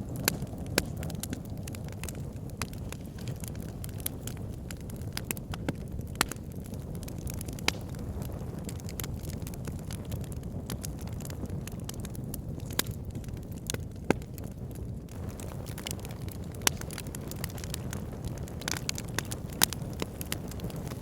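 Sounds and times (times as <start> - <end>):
logs popping and snapping: 0.0 - 6.5, 15.1 - 21.0
low rumble of flames: 0.0 - 21.0.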